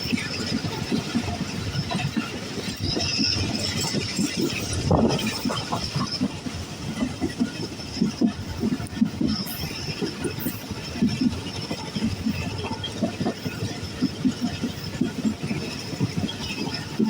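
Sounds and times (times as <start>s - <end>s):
train rumbling on rails: 0.0s - 17.0s
wheels knocking and rattling: 0.0s - 17.0s.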